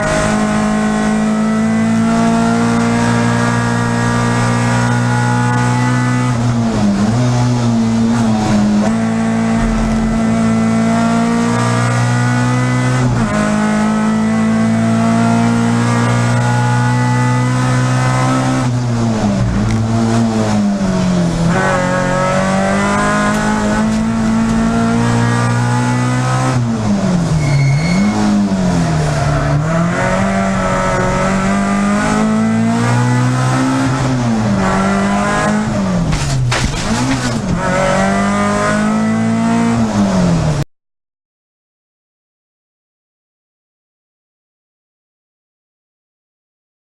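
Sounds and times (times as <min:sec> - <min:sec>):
rally car engine at high revs: 0:00.0 - 0:40.6.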